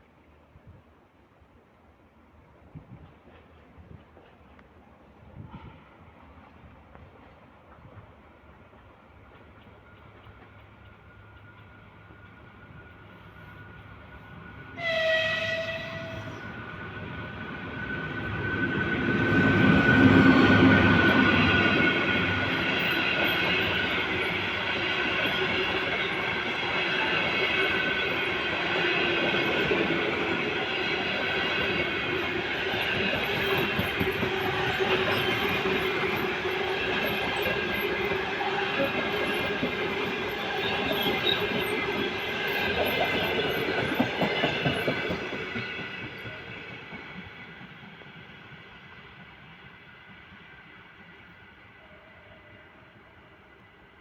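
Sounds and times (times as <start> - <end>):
train passing on rails: 0.0 - 54.0
locomotive horn: 14.8 - 16.4.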